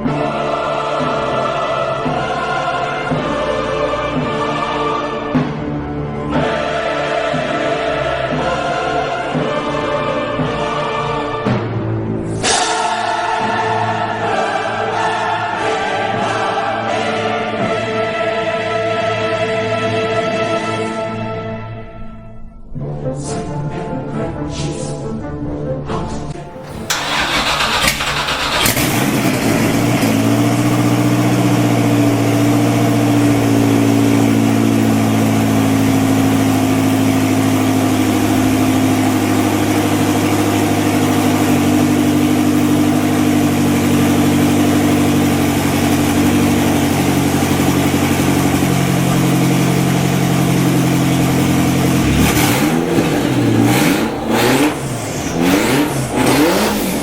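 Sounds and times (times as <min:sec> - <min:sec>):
car engine starting and idling: 0:26.4 - 0:57.0
engine revving in blips: 0:26.6 - 0:57.0.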